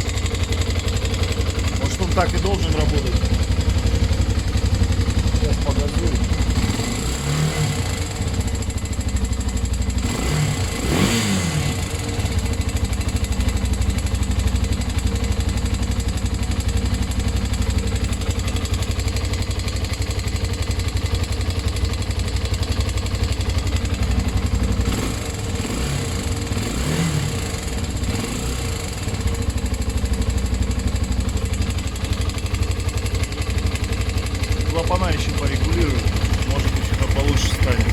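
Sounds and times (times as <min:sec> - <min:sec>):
engine revving: 0:05.3 - 0:08.8, 0:09.9 - 0:12.6, 0:24.7 - 0:29.3, 0:34.6 - 0:37.9.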